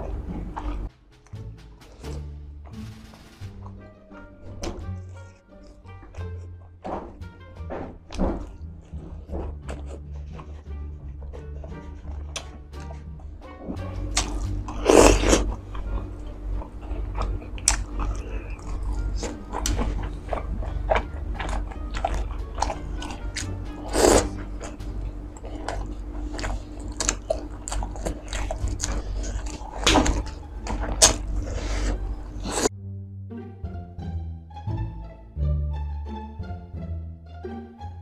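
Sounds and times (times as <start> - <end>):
background music: 0.0 - 38.0
crunchy bites and chewing: 8.2 - 10.6, 13.7 - 32.7.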